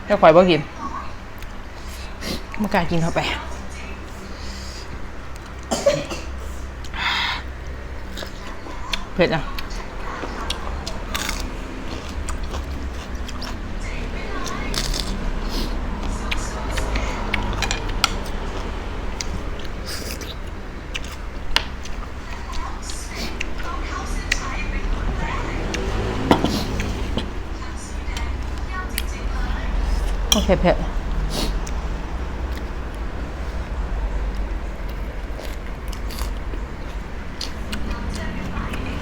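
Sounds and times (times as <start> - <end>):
steady low rumble: 0.0 - 39.0
chewing clicks and crunches: 8.0 - 13.6, 14.3 - 15.2, 16.0 - 24.6, 34.3 - 39.0.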